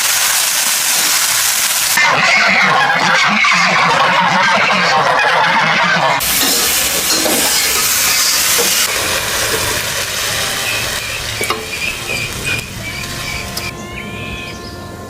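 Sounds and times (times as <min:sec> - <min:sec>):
loud steady hissing: 0:00.0 - 0:02.5, 0:06.2 - 0:13.8.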